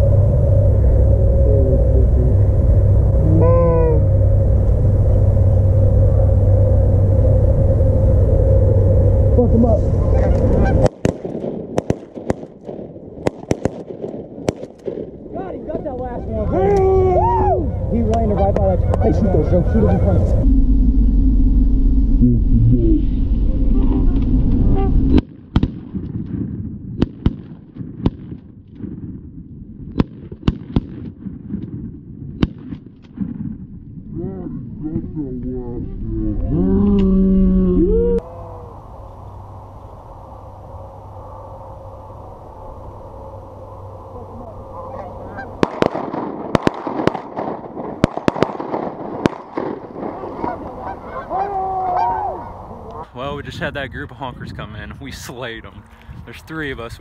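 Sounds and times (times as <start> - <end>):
loud low rumble: 0.0 - 57.0
geese honking: 9.7 - 11.0, 15.4 - 20.4, 44.0 - 45.8, 49.9 - 53.1
shotguns firing: 10.8 - 15.3, 25.2 - 29.1, 45.6 - 50.8.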